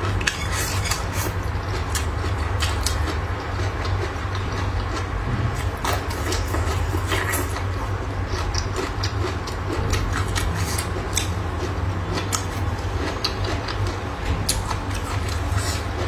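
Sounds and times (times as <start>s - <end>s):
steady low hum: 0.0s - 16.0s
chewing crunches: 0.1s - 16.0s.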